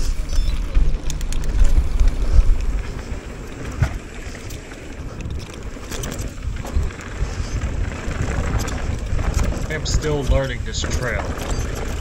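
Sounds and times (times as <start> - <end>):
bike knocks and rattles: 0.0 - 12.0
bike rumbling over rough dirt: 0.0 - 12.0
wind buffeting microphone: 0.0 - 12.0.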